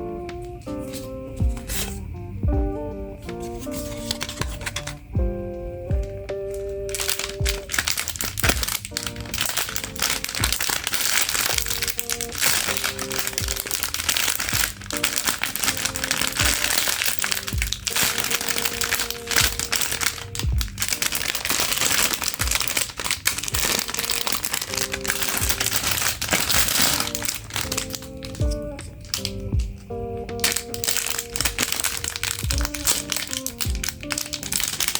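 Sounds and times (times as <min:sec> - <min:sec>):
background music: 0:00.0 - 0:34.9
package wrapping crinkling: 0:00.4 - 0:02.0, 0:03.3 - 0:05.1, 0:06.5 - 0:34.9.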